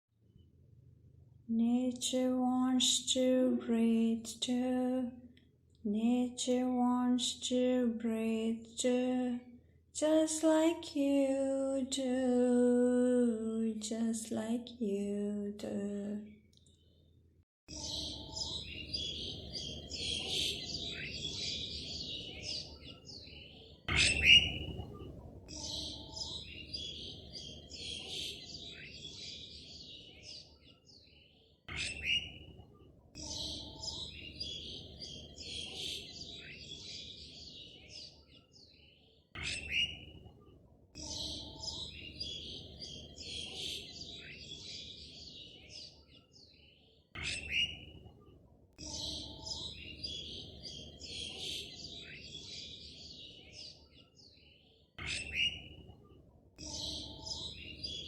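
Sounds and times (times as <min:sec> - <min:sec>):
birds chirping: 0:17.7 - 0:58.0.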